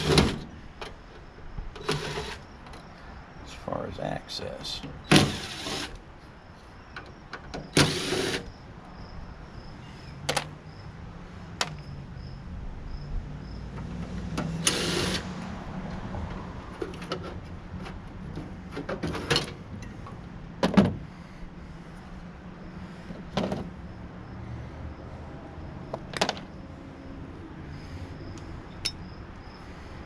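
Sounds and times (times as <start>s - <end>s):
cordless drill whirring: 5.2s - 6.0s, 7.8s - 8.4s, 14.6s - 15.2s.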